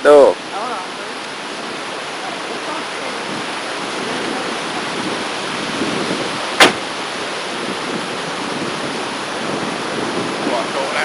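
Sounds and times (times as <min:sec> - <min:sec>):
steady outdoor rushing noise: 0:00.0 - 0:11.0
sharp click: 0:06.6 - 0:06.8.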